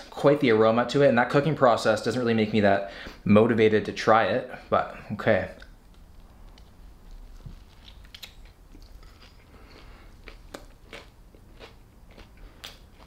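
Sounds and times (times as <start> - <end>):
crunchy filling crackling: 5.2 - 13.0
person biting and chewing food: 5.6 - 13.0.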